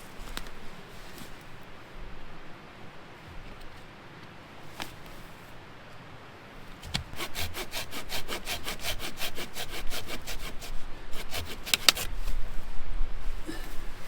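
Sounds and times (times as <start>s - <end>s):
hand saw cutting wood: 7.0s - 12.2s.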